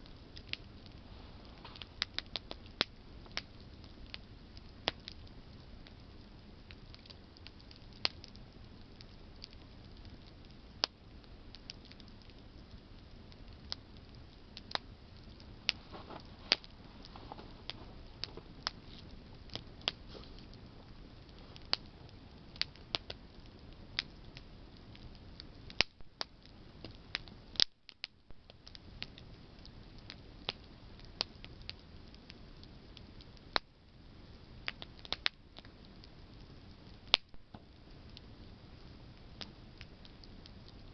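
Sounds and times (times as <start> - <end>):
hiss of flames: 0.0 - 27.7
campfire crackling and popping: 0.0 - 40.9.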